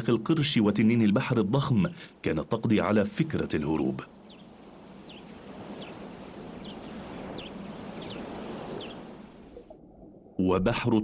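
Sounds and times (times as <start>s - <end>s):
bird chirping: 4.2s - 9.2s.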